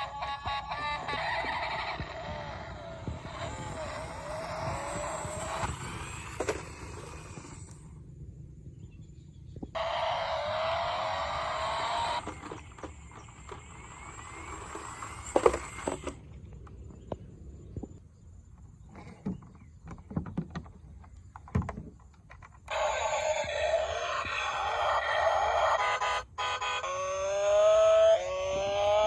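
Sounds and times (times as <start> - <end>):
electronic toy rising tones: 0.0 - 8.0, 9.7 - 16.8, 22.7 - 29.0
plastic toys clicking and knocking: 11.9 - 16.8, 18.9 - 23.0.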